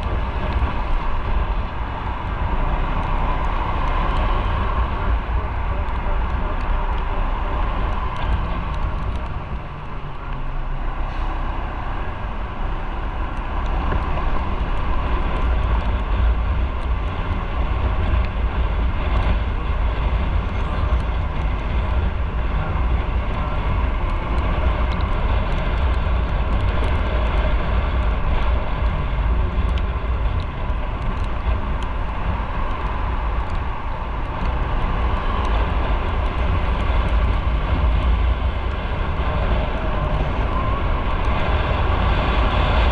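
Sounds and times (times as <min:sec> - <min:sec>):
wind rush on microphone: 0:00.0 - 0:42.9.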